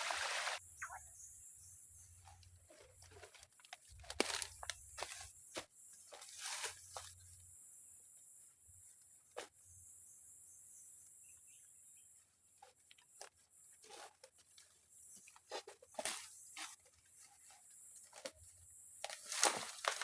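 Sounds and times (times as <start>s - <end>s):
high-pitched hiss: 0.0s - 2.1s.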